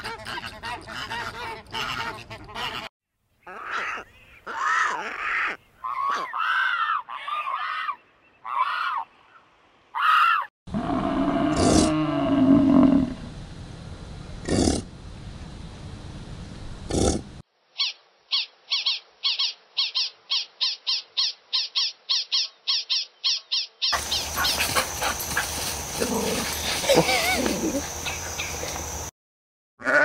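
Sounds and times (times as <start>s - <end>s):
bison grunting bellow: 10.7s - 13.2s, 14.4s - 14.9s.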